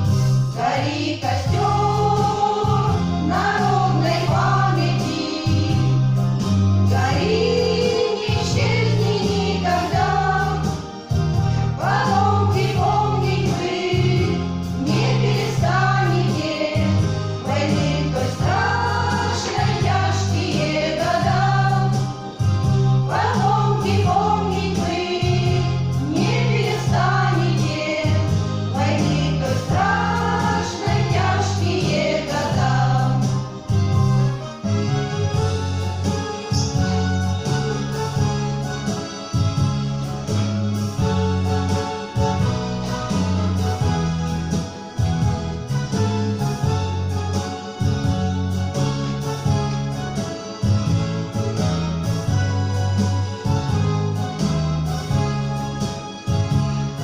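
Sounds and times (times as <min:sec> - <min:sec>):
instrumental accompaniment with bass: 0:00.0 - 0:57.0
women's choir singing: 0:00.6 - 0:06.2, 0:06.9 - 0:11.0, 0:11.8 - 0:22.4, 0:23.0 - 0:33.8.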